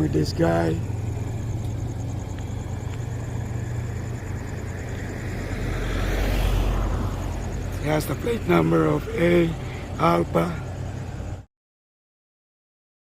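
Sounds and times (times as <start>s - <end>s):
low traffic hum: 0.0s - 11.5s
vehicle passing close by: 0.0s - 11.5s.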